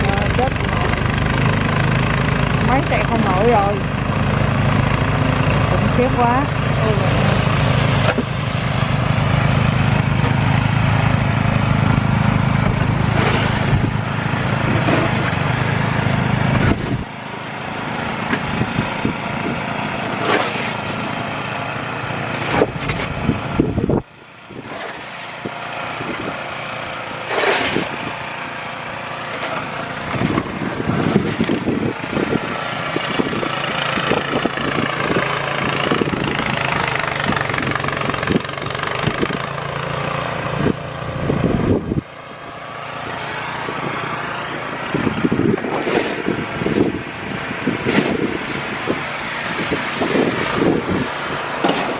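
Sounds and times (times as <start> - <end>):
snow blower engine: 0.0 - 51.9
scraping noises: 12.7 - 13.9, 20.1 - 20.9, 27.2 - 28.0.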